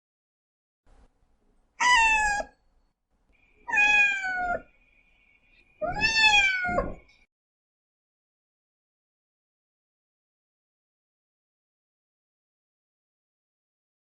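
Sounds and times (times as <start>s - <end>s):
cat meowing: 1.8s - 2.6s, 3.6s - 4.7s, 5.8s - 7.1s.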